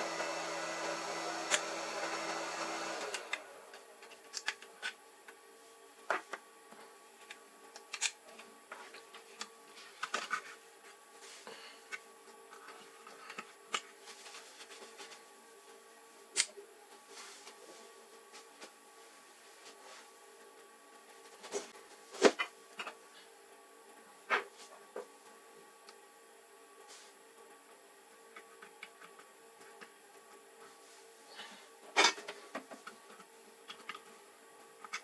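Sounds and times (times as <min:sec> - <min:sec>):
whirring blower motor: 0:00.0 - 0:03.9.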